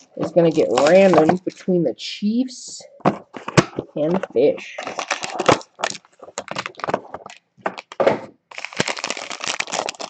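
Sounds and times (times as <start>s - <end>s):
plastic wrapper crinkling: 0.0s - 1.7s, 3.0s - 10.0s
packaging clicking and cracking: 3.1s - 10.0s.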